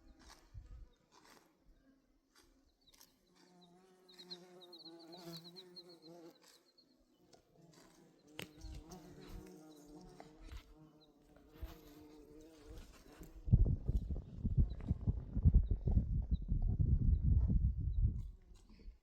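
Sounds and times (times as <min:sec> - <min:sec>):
flying insect buzzing: 0:03.4 - 0:06.6, 0:07.6 - 0:13.5.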